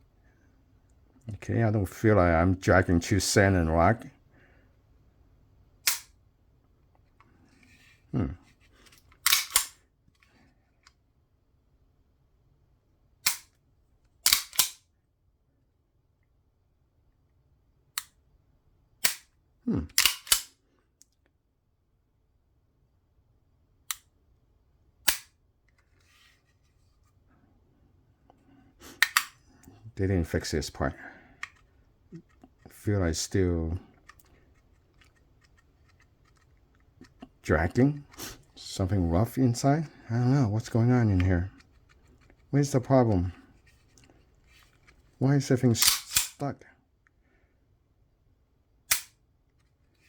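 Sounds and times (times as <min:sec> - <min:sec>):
pistol dry-fire clicks: 0:05.8 - 0:06.1, 0:09.2 - 0:09.8, 0:13.2 - 0:13.6, 0:14.2 - 0:14.8, 0:19.0 - 0:19.3, 0:20.0 - 0:20.6, 0:25.0 - 0:25.3, 0:29.0 - 0:29.4, 0:45.8 - 0:46.4, 0:48.9 - 0:49.2.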